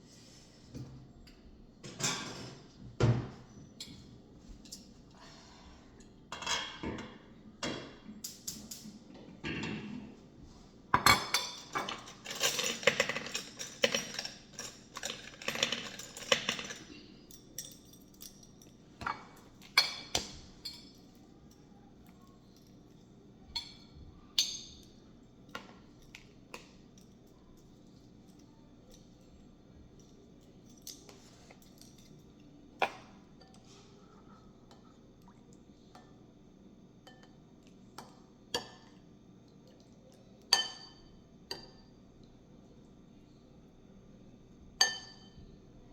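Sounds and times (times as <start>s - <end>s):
utensils clinking against dishes: 1.8s - 2.8s, 6.0s - 10.0s, 11.0s - 21.7s, 22.3s - 29.4s, 37.0s - 39.0s, 40.5s - 42.0s, 44.8s - 45.4s.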